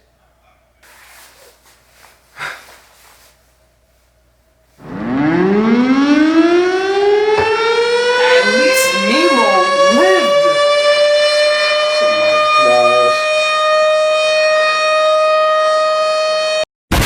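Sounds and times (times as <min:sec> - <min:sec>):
rising siren tone: 0:04.8 - 0:16.5
wavering voice-like glides: 0:07.4 - 0:10.6, 0:12.2 - 0:14.4.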